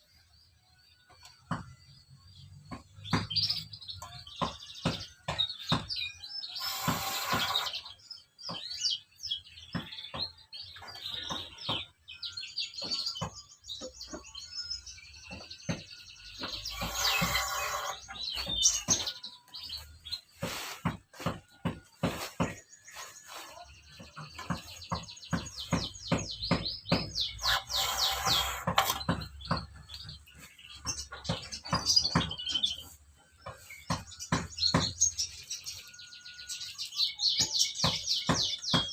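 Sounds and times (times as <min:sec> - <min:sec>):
small birds chirping: 0:00.0 - 0:38.9
noisy rasps: 0:06.6 - 0:08.0, 0:16.4 - 0:18.8, 0:27.2 - 0:29.2.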